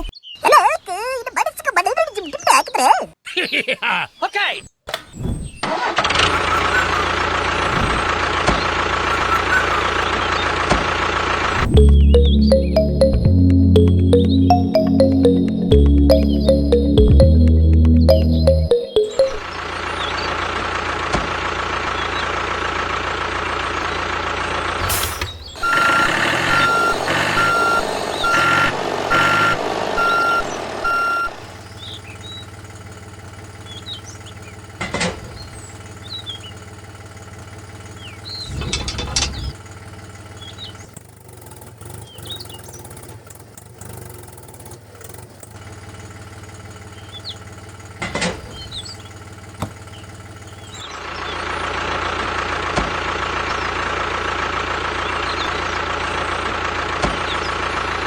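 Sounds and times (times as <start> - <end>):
reversing beeper beeping: 11.6 - 19.6, 25.5 - 31.5.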